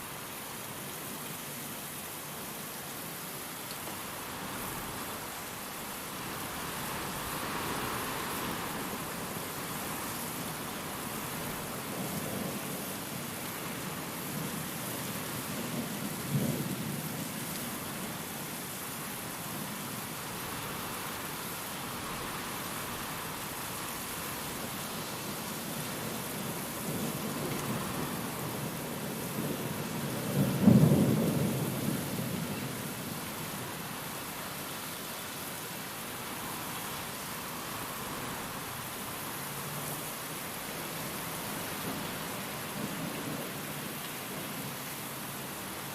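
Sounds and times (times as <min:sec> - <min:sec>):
steady rain: 0:00.0 - 0:45.9
thunder rumbling: 0:20.3 - 0:33.2
thunder clap rumbling: 0:30.2 - 0:32.5.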